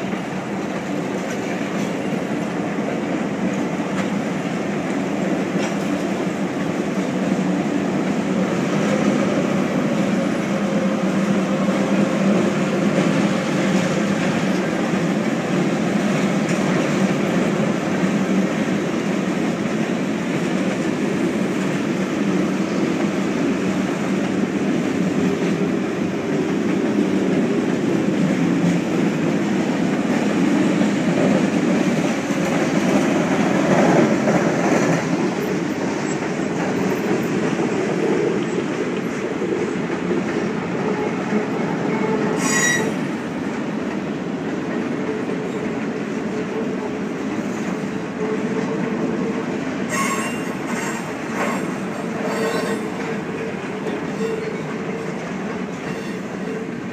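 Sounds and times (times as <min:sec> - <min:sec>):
freight cars rumbling and rattling: 0:00.0 - 0:49.8
high wheel squeals: 0:41.9 - 0:43.1, 0:49.9 - 0:53.0, 0:54.1 - 0:55.2.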